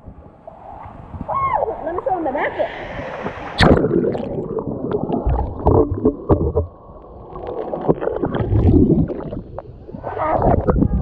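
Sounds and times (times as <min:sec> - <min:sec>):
pool water sloshing and bubbling: 0:03.0 - 0:11.0.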